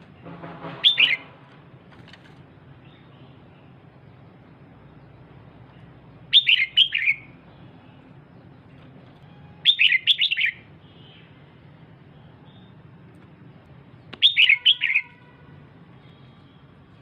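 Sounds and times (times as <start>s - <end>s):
bird chirping: 2.8s - 12.8s, 13.4s - 15.3s.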